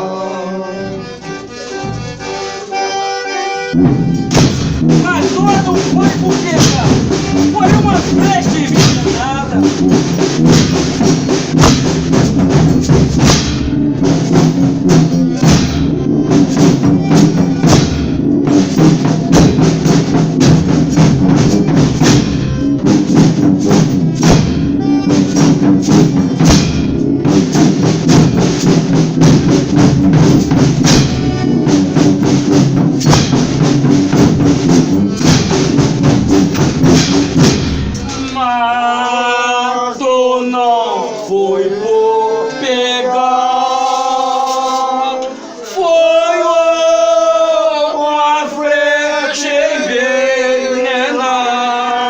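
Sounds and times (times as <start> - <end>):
held instrumental notes: 0.0 - 39.6
drums beating: 0.8 - 39.6, 42.8 - 46.1
tambourine beating: 3.8 - 38.3, 43.6 - 45.0.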